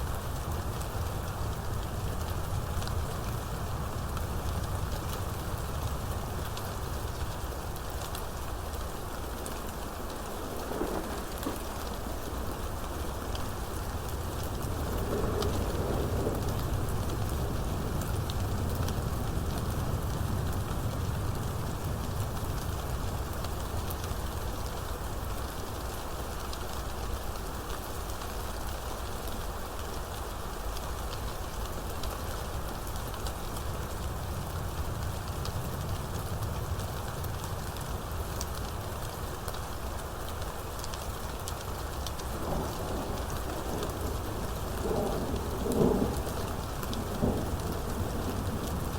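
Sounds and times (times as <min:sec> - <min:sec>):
rain: 0:00.0 - 0:48.9
sharp rain drop ticks: 0:04.0 - 0:21.2, 0:34.8 - 0:48.9
continuous low rumble: 0:31.1 - 0:48.9.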